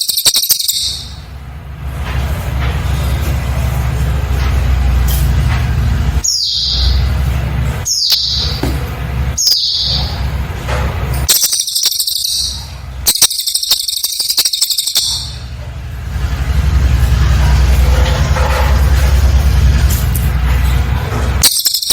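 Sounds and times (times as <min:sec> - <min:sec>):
high bird trills: 0:00.0 - 0:01.3, 0:06.2 - 0:10.3, 0:11.3 - 0:15.5, 0:21.4 - 0:21.9
bird calling high notes: 0:06.2 - 0:07.2, 0:07.8 - 0:08.6, 0:09.4 - 0:10.3, 0:11.3 - 0:15.4.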